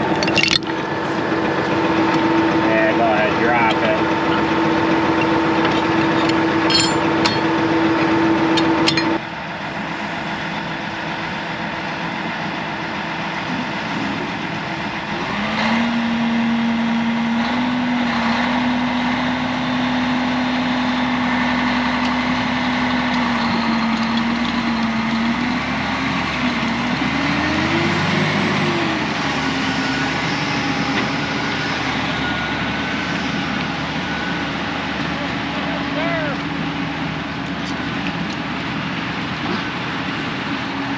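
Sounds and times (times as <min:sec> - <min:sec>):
heavy diesel engines under load: 0:00.0 - 0:40.9
engine revving: 0:14.9 - 0:33.5.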